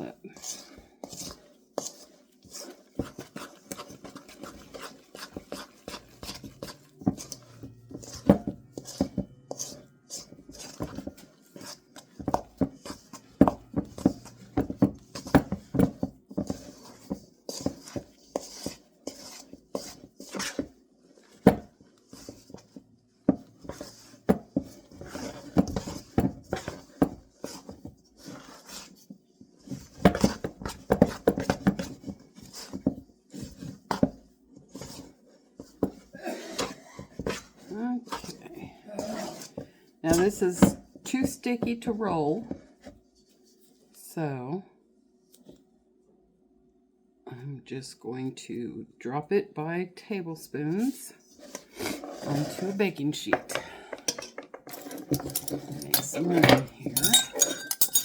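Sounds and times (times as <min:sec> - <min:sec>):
spoon knocking against bowl: 0:57.0 - 0:58.0.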